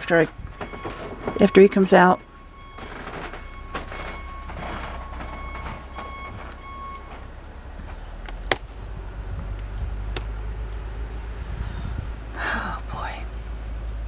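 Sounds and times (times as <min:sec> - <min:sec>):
intermittent beeping: 0:00.0 - 0:09.0
snowplow engine rumbling: 0:00.0 - 0:14.0.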